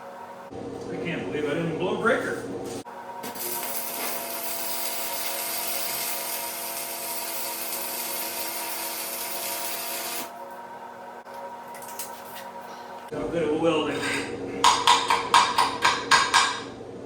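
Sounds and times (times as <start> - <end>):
steady hum: 0.0 - 6.6, 10.0 - 17.0
welding arc crackling hiss: 3.2 - 10.3.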